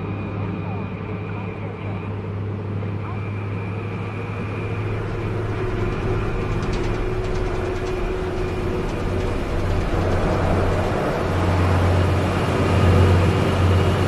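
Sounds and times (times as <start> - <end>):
vehicle engine running: 3.8 - 14.0.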